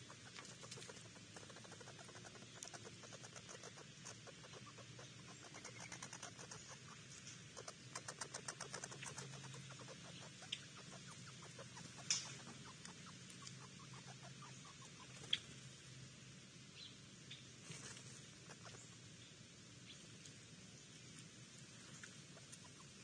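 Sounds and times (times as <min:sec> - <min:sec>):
rapid small clicks: 0:00.2 - 0:04.2, 0:05.5 - 0:09.8.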